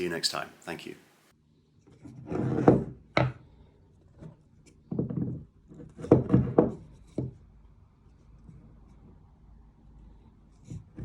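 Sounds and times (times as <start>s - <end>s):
scrape on workbench: 2.0s - 3.0s.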